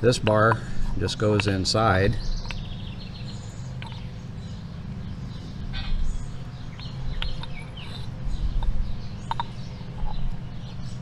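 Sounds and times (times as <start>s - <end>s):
low background hum: 0.0s - 11.0s
small birds chirping: 0.0s - 11.0s.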